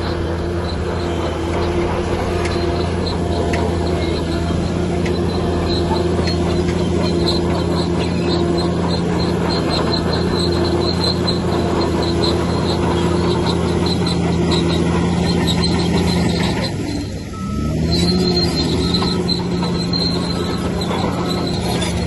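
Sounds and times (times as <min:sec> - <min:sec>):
bulldozer diesel engine running: 0:00.0 - 0:22.0
short high-pitched squeaks: 0:00.0 - 0:22.0.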